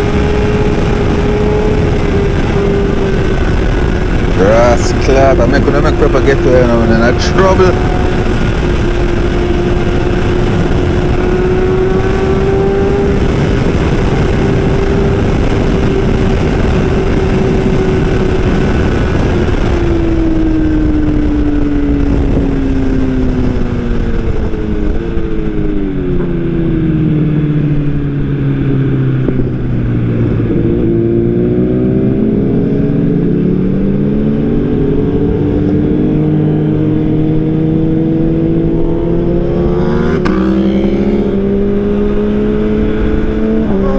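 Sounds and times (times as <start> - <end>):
wind rushing: 0.0 - 26.9
motorcycle engine at high revs: 0.0 - 43.9.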